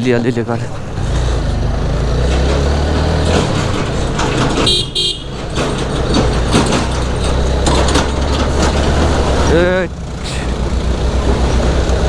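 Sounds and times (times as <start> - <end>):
motorcycle engine running: 0.0 - 12.0
high-pitched horn beeps: 4.7 - 5.3.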